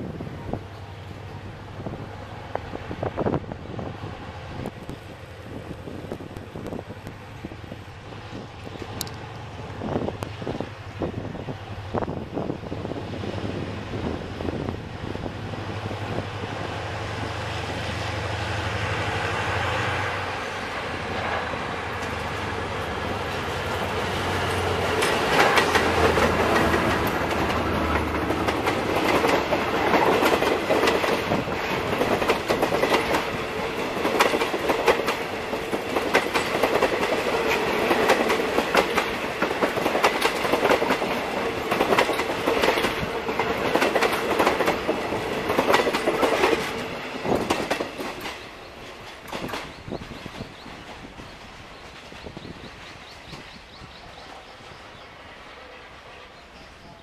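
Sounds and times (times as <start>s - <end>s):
locomotive engine hum: 0.0s - 57.0s
train wheels clickety-clack: 21.0s - 55.0s.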